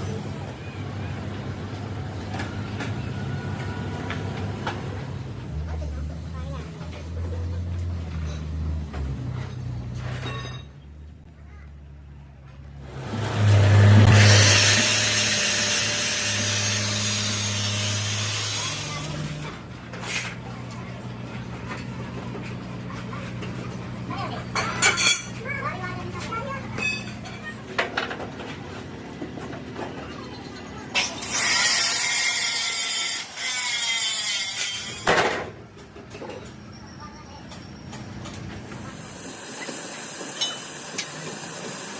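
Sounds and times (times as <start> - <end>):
workshop machine hum: 0.0 - 10.1, 12.2 - 41.9
harsh mechanical noise with whine: 0.0 - 11.1, 12.4 - 41.9
power tool running loudly: 12.9 - 19.6.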